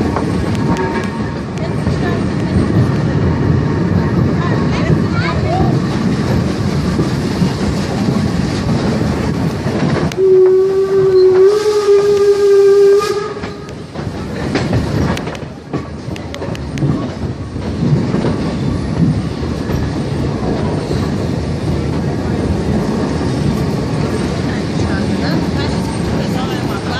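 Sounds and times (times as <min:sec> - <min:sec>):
train running: 0:00.0 - 0:26.9
locomotive whistle: 0:10.1 - 0:13.8
wheels clicking over rail joints: 0:13.2 - 0:26.9.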